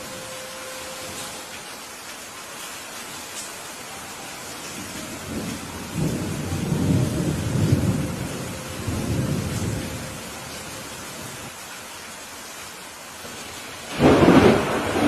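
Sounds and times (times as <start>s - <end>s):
steady rain: 0.0s - 15.0s
thunder rumbling: 4.8s - 11.4s, 13.9s - 15.0s.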